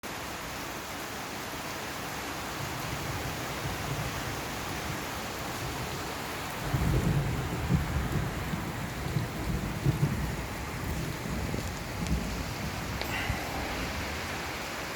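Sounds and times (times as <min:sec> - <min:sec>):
rain hissing: 0:00.0 - 0:14.9.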